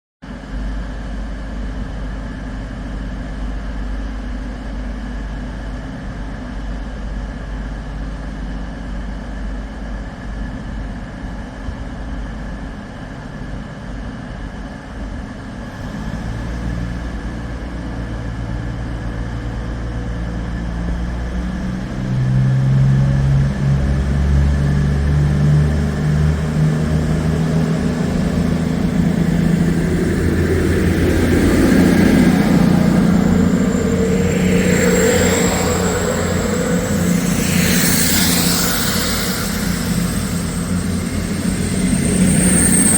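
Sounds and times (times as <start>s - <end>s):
diesel train engine rumbling: 15.6s - 42.9s.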